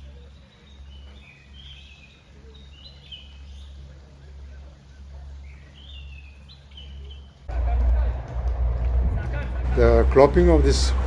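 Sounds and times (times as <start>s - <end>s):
small birds chirping: 0.0s - 8.9s
steady low rumble: 7.4s - 11.0s.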